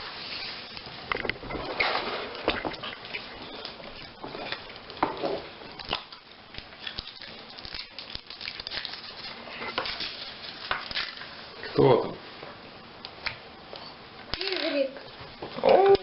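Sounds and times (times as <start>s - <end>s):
foil wrappers crinkling: 0.0s - 11.6s.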